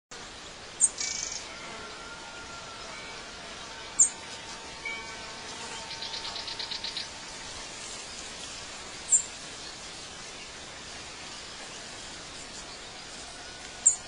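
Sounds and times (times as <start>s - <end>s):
background hiss: 0.1s - 14.0s
birds chirping: 0.2s - 14.0s
bird trill: 0.8s - 7.4s.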